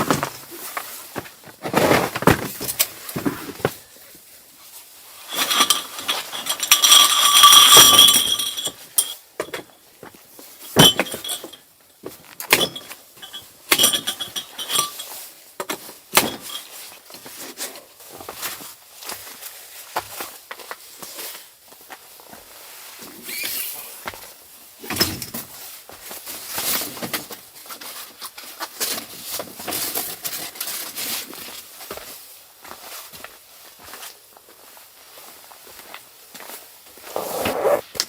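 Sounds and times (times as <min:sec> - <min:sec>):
metal objects clinking: 0:05.3 - 0:09.2.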